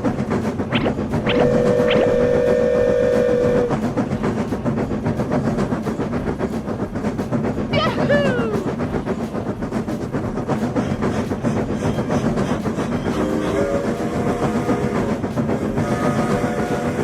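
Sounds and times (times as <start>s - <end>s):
train clickety-clack: 0.0s - 17.0s
sustained tone: 0.7s - 3.5s
train horn chord: 1.3s - 3.8s, 13.3s - 17.0s.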